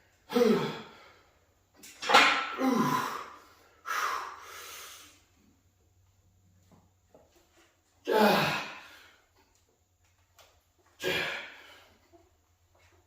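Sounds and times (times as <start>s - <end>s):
man grunting: 0.3s - 0.9s, 2.5s - 3.3s, 8.0s - 8.9s, 11.0s - 11.7s
man breathing out hard: 2.6s - 5.2s, 11.0s - 12.0s.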